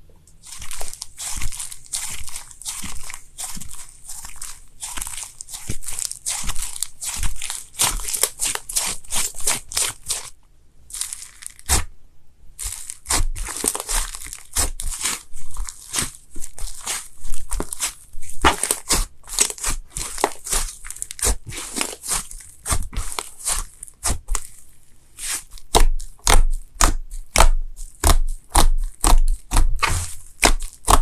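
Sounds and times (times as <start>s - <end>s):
slime crackling squeezed by hand: 0.4s - 10.3s, 10.9s - 11.9s, 12.6s - 31.0s.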